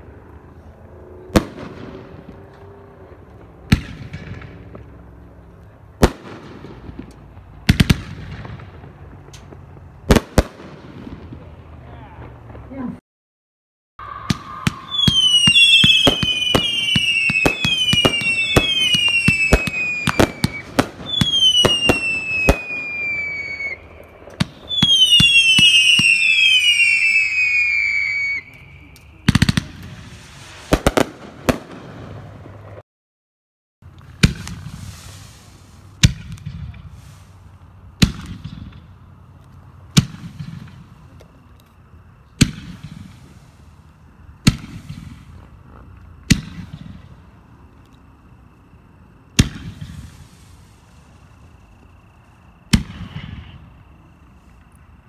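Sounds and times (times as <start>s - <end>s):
falling firework whistles: 14.0s - 32.4s, 34.2s - 39.0s, 42.4s - 48.4s, 49.2s - 54.7s
firework cake firing rapid shots: 29.2s - 32.4s, 38.0s - 38.8s.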